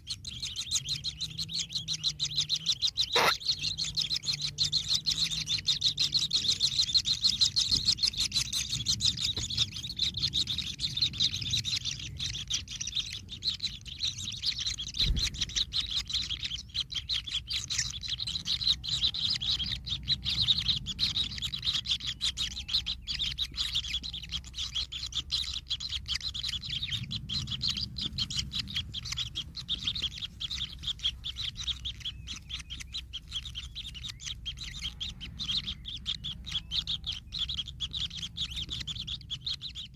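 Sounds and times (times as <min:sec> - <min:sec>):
nestlings chirping begging calls: 0:00.0 - 0:39.9.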